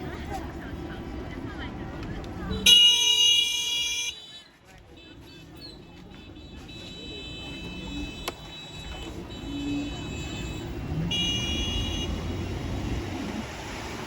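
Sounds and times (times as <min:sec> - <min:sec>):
motorbike wind and road rumble: 0:00.0 - 0:03.2, 0:04.8 - 0:14.0.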